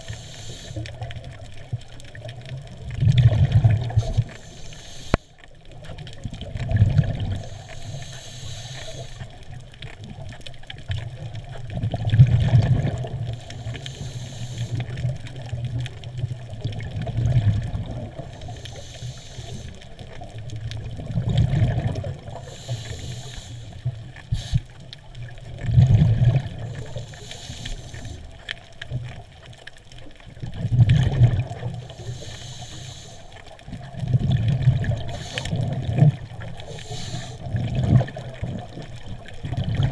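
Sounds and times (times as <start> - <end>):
regulator inhalation hiss: 0.0 - 0.9, 3.9 - 5.4, 7.4 - 9.3, 13.3 - 15.0, 18.4 - 19.8, 22.3 - 24.8, 26.7 - 28.4, 31.8 - 33.6, 35.0 - 35.7, 36.5 - 37.5
underwater exhaled bubbles: 0.0 - 39.9.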